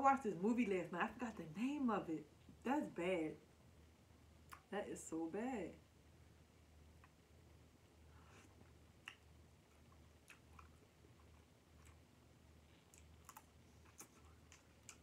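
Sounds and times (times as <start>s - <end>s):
low steady hum: 0.0s - 15.0s
soft chewing: 4.4s - 4.7s, 6.6s - 15.0s
mouth clicks and smacks: 4.5s - 4.7s, 8.2s - 11.0s.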